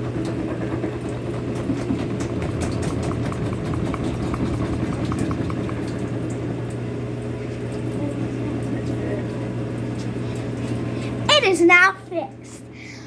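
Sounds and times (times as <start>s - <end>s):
washing machine spinning: 0.0s - 12.9s
rapid light ticking: 1.2s - 6.4s.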